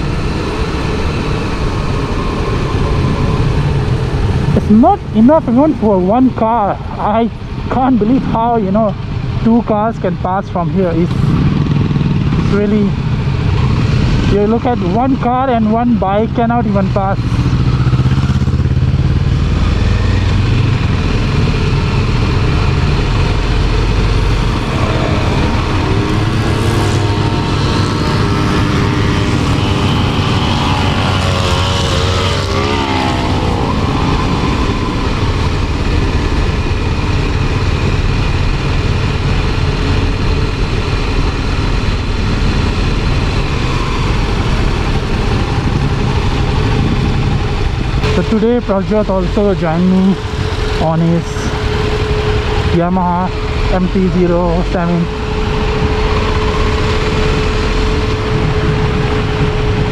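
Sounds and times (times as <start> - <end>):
wind rushing over microphone: 0.0 - 59.9
motorcycle engine running: 10.6 - 59.9.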